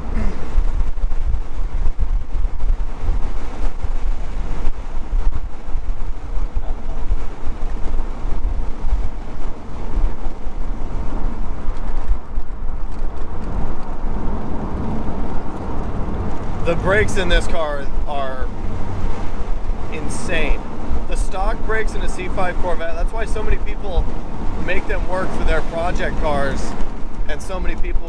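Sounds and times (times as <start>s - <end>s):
car engine rumbling: 0.0s - 28.0s
tyre road noise: 0.0s - 28.0s.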